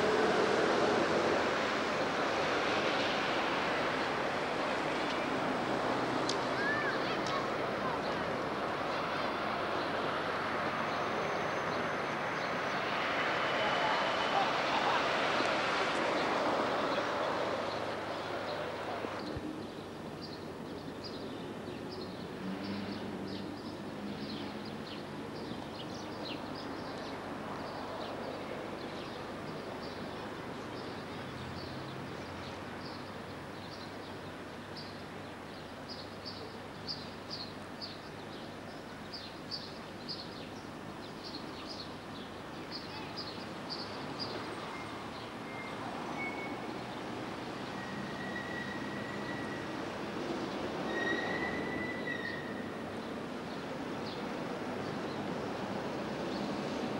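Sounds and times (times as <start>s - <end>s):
town traffic: 0.0s - 56.9s.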